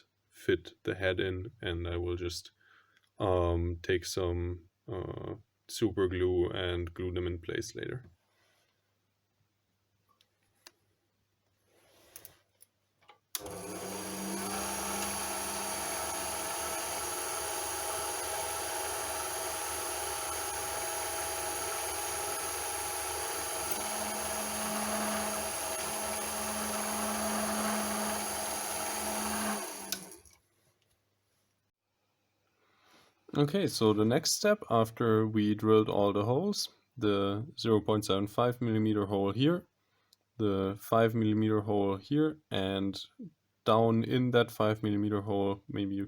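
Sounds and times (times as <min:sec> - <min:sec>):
small lathe whining: 0:13.4 - 0:30.4.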